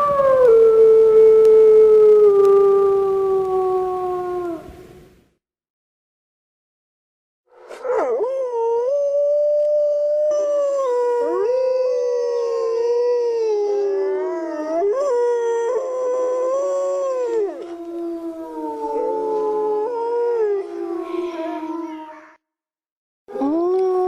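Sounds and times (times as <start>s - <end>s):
wolves howling: 7.8s - 22.2s.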